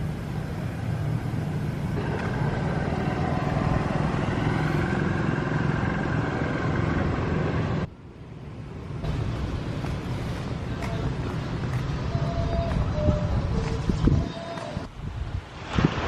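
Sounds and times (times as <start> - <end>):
motor vehicle engine running: 0.0 - 7.9.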